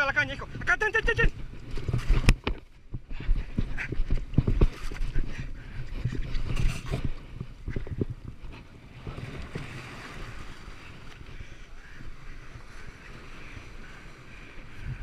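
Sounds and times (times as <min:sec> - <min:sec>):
wind buffeting microphone: 0:00.0 - 0:15.0
surf washing: 0:03.1 - 0:15.0.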